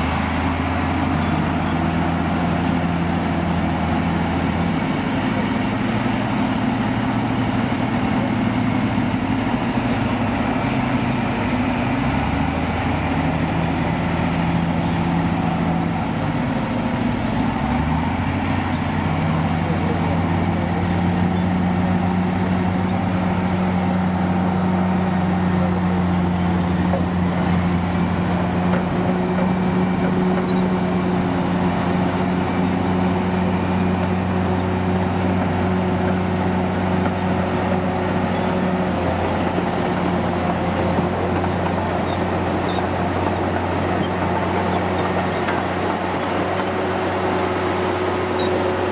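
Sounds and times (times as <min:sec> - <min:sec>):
heavy diesel engines running: 0:00.0 - 0:48.9.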